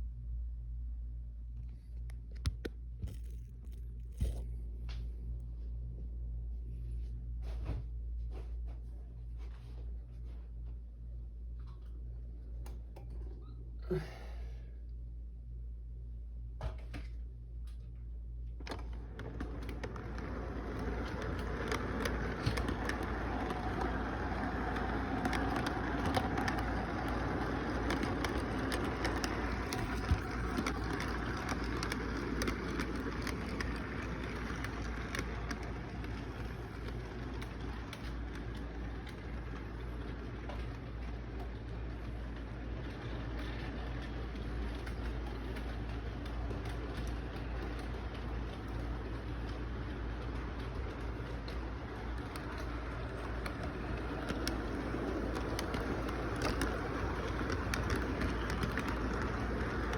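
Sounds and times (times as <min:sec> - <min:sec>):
low hum: 0:00.0 - 0:59.9
model train rattling on track: 0:19.0 - 0:59.9.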